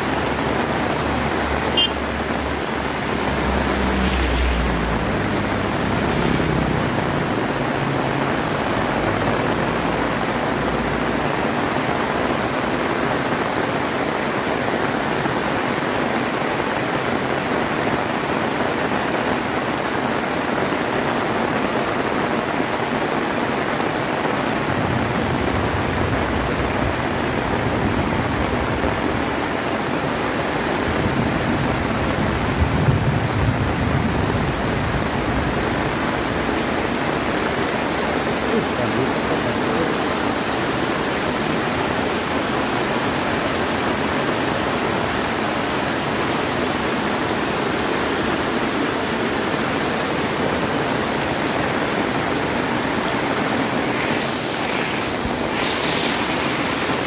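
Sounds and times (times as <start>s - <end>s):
heavy rain: 0.0s - 57.0s
thunder rumbles: 30.5s - 38.4s.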